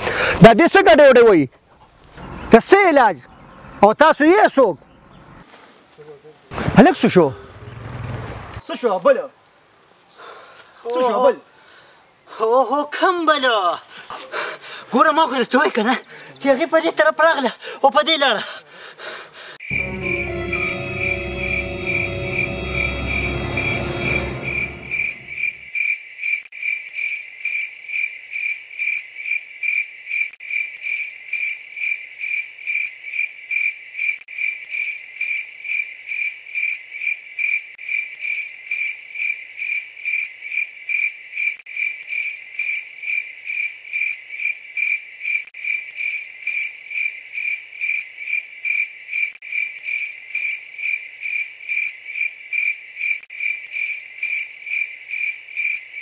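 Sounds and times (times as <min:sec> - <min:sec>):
cricket chirping: 0:19.7 - 0:56.0.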